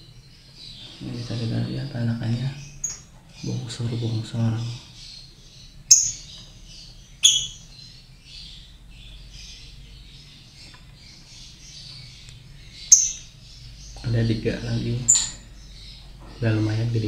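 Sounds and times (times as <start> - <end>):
lovebirds chirping: 0.0 - 17.0
loud sharp squawks: 7.2 - 7.7.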